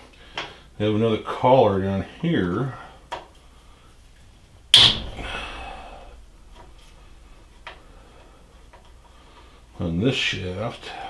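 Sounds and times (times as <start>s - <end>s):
metallic clank: 4.3s - 9.0s.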